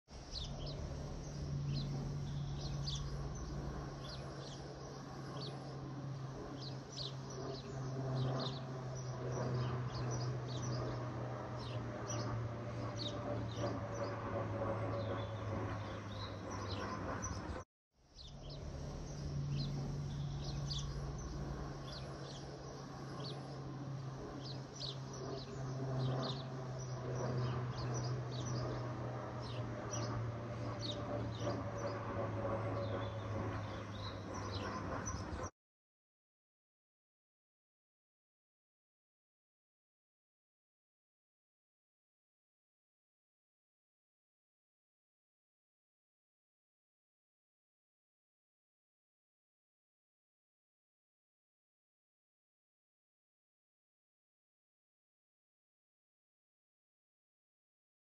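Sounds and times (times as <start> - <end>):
steady low hum: 0.1 - 35.5
birds chirping: 0.2 - 17.6, 18.2 - 35.5.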